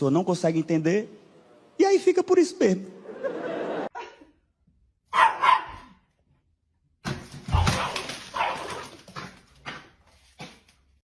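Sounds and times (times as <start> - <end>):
dog barking: 5.1 - 6.0, 7.5 - 8.9.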